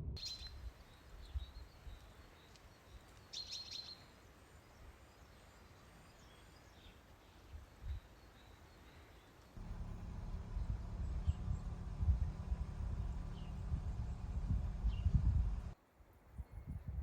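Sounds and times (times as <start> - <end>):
small songbirds chirping: 0.2 - 17.0
faint low rumble: 9.6 - 15.8.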